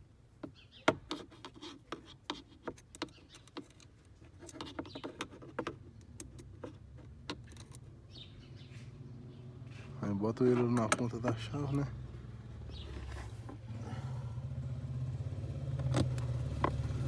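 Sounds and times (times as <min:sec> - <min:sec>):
tool clicking and scraping on plastic: 0:00.4 - 0:07.9.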